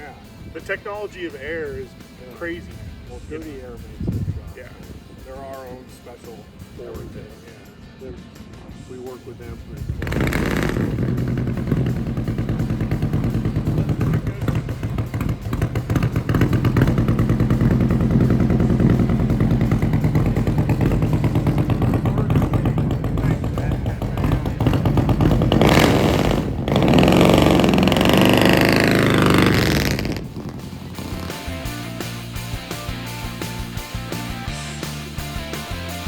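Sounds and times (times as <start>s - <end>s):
motorcycle engine running: 9.4s - 36.0s.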